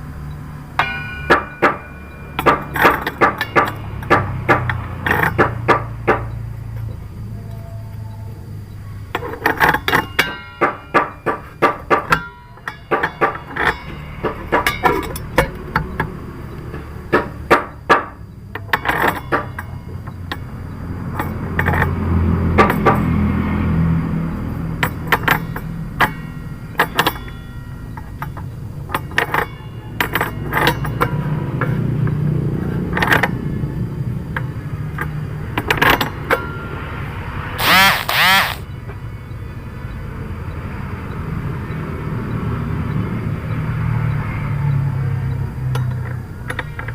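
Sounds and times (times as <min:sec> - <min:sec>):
metallic clinks of hand tools: 0:00.8 - 0:05.6, 0:09.1 - 0:16.0.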